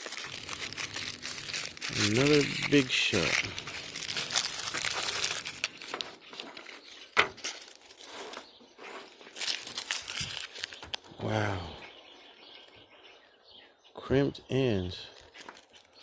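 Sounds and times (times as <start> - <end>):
paper crinkling and rustling: 0.0 - 11.1, 15.1 - 16.0.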